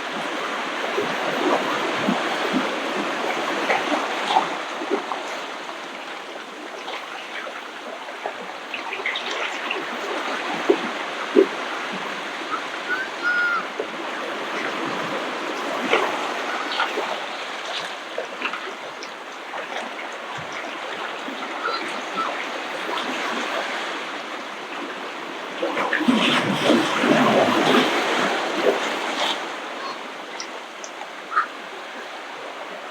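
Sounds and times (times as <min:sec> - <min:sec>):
ocean waves washing up beach: 0:00.0 - 0:32.9.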